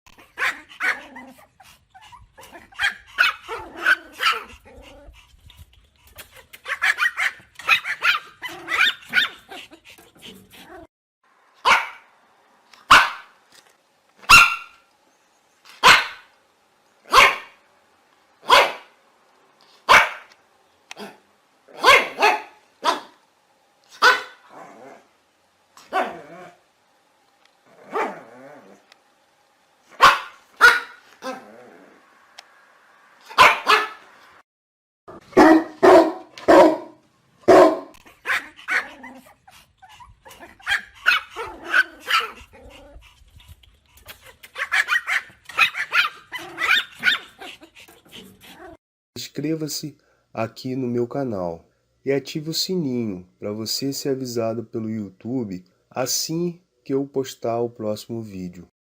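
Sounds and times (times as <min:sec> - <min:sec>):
small dog barking: 0:00.2 - 0:01.4, 0:02.5 - 0:04.6, 0:06.6 - 0:09.6, 0:11.6 - 0:12.1, 0:12.9 - 0:13.4, 0:14.2 - 0:14.8, 0:15.8 - 0:16.3, 0:17.1 - 0:17.6, 0:18.4 - 0:19.0, 0:19.8 - 0:20.3, 0:21.0 - 0:23.2, 0:23.9 - 0:24.6, 0:25.8 - 0:26.5, 0:27.8 - 0:28.3, 0:29.9 - 0:31.4, 0:33.2 - 0:34.1, 0:35.1 - 0:39.3, 0:40.3 - 0:42.9, 0:44.5 - 0:47.6.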